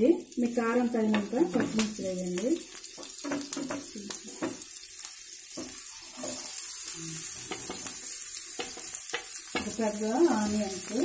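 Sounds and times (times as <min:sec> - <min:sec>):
food sizzling in hot oil: 0:00.0 - 0:11.0
spatula stirring in a pan: 0:02.6 - 0:11.0.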